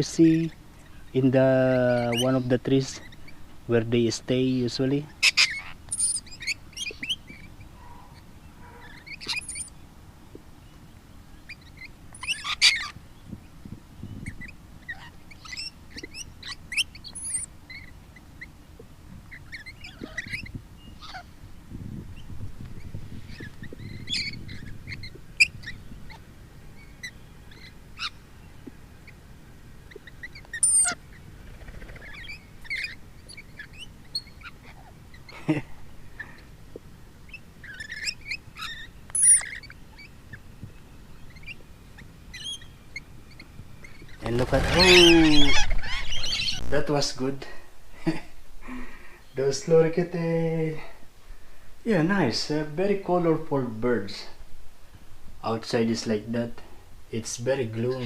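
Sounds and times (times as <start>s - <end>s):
lorikeets screeching: 0.0s - 9.8s, 11.3s - 13.0s, 14.1s - 18.6s, 19.3s - 21.4s, 22.2s - 29.2s, 29.9s - 36.5s, 37.3s - 40.5s, 41.1s - 47.3s.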